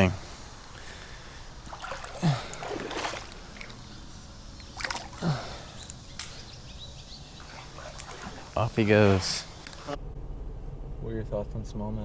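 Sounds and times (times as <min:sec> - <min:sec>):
water sloshing and splashing: 0:00.8 - 0:06.0, 0:07.2 - 0:09.9.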